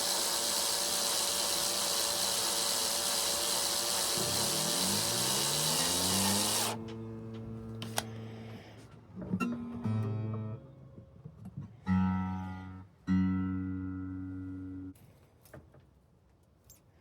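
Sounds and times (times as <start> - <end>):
acoustic guitar notes and chords: 9.4 - 11.0, 11.8 - 15.0.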